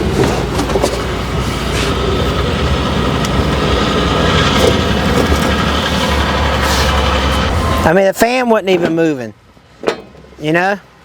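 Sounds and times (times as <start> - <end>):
engine running with low hum: 0.0 - 7.9.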